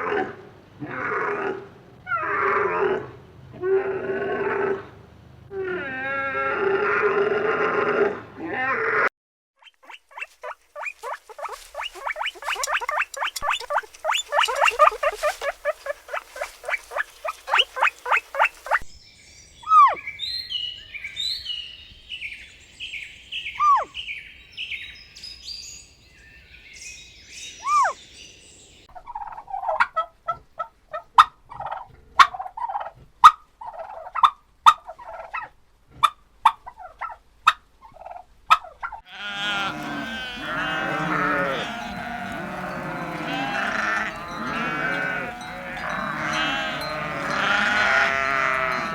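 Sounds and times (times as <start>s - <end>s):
high chirping: 9.6s - 18.9s, 39.8s - 48.3s
farm fowl calling: 9.8s - 18.9s, 38.0s - 48.9s.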